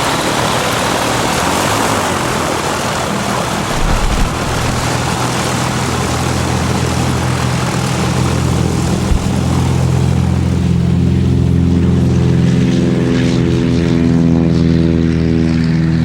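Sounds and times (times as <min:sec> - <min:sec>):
propeller aircraft engine drone: 0:00.0 - 0:16.0
loud rushing noise: 0:03.6 - 0:06.4, 0:08.5 - 0:09.8
brief thump: 0:03.7 - 0:05.1, 0:09.0 - 0:09.5.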